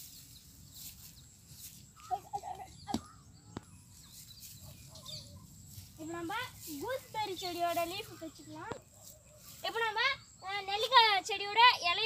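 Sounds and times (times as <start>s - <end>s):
clucking bird calls: 1.9s - 5.5s.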